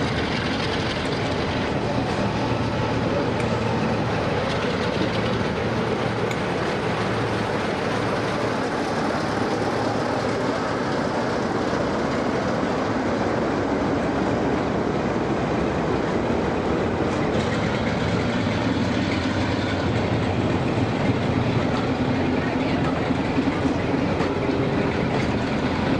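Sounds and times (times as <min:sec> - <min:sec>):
train wheels rumbling on rail: 0:00.0 - 0:25.9
clatter of track joints: 0:17.1 - 0:20.1, 0:22.8 - 0:25.9.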